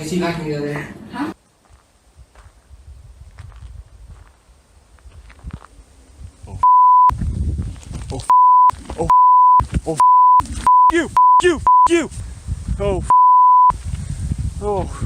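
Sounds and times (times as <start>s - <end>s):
censor bleeps: 6.6s - 7.2s, 8.3s - 12.0s, 13.1s - 13.8s
person shouting: 10.9s - 12.1s.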